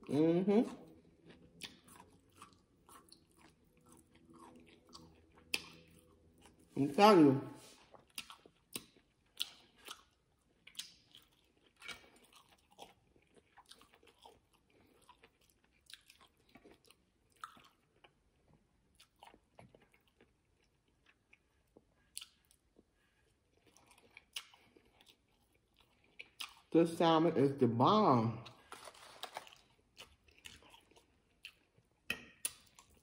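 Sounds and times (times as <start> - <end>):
chewing with mouth clicks: 0.7 - 6.8, 7.8 - 26.7, 29.2 - 33.0.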